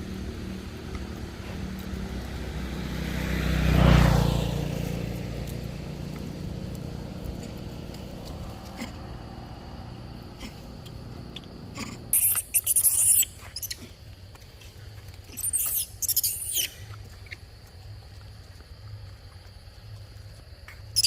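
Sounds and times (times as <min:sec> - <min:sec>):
monkey squealing: 0:11.3 - 0:13.9, 0:15.3 - 0:16.8.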